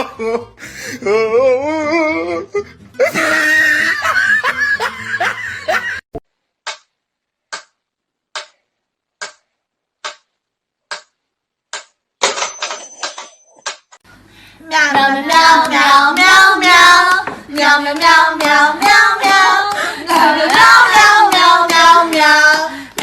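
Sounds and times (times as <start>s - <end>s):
laughter-like vocal sounds: 0.0s - 6.1s.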